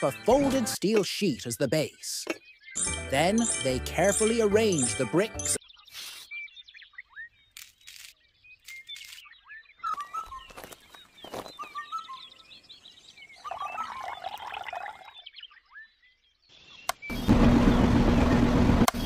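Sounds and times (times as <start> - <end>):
small birds chirping: 0.0 - 17.3
water pouring into toy drum: 13.5 - 15.2.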